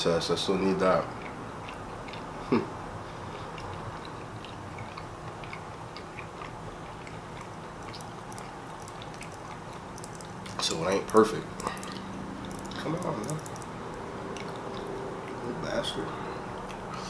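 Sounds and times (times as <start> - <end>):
person chewing food: 1.0 - 13.7, 14.3 - 15.4
wet mouth clicks: 3.5 - 10.6, 11.6 - 13.7, 14.4 - 15.4.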